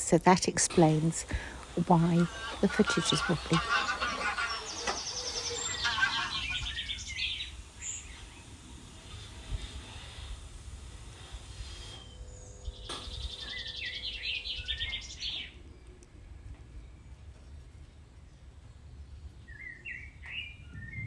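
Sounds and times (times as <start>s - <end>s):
birds calling high notes: 0.4s - 15.6s.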